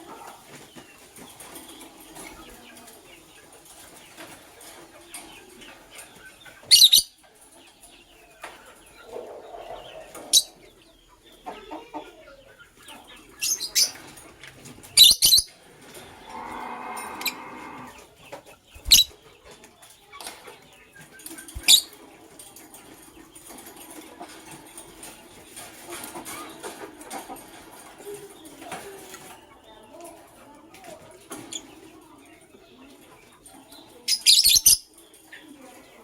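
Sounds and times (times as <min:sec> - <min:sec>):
lovebirds chirping: 0:05.0 - 0:23.6, 0:31.3 - 0:36.0
wing flapping: 0:18.7 - 0:19.1, 0:21.2 - 0:21.9.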